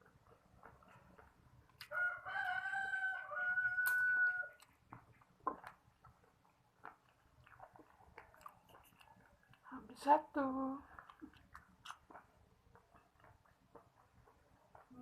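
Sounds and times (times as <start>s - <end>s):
rooster crowing: 1.9s - 4.6s.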